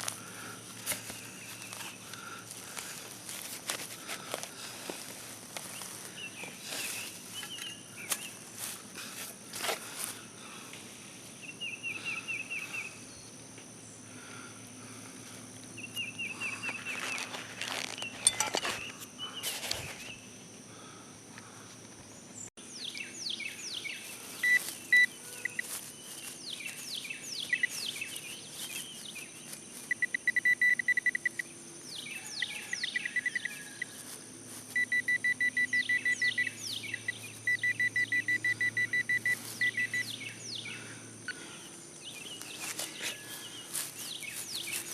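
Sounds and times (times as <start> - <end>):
metal detector beeping: 16.0 - 19.0, 24.4 - 25.8, 27.4 - 28.0, 29.8 - 31.5, 32.4 - 40.3
digging knocks and scraping: 16.7 - 20.1
high falling chirps: 32.7 - 40.6.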